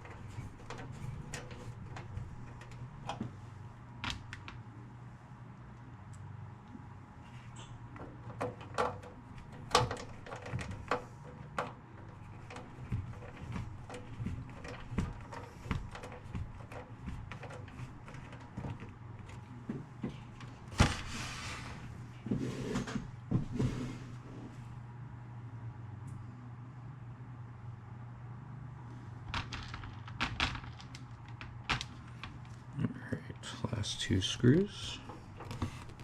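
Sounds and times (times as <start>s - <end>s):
parts clicking and knocking: 0.0s - 3.3s, 7.9s - 20.7s, 29.2s - 32.8s
scraping rustles: 0.0s - 3.5s, 7.2s - 24.2s, 34.9s - 36.0s
steady low hum: 0.0s - 36.0s.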